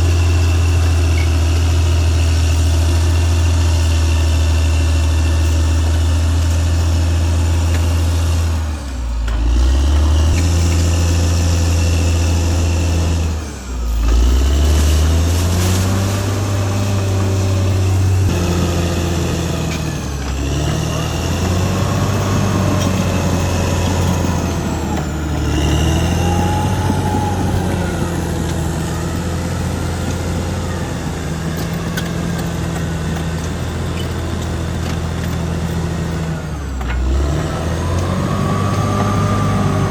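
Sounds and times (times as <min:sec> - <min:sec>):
bulldozer diesel engine: 0:00.0 - 0:39.9
high wavering whines: 0:13.1 - 0:34.3.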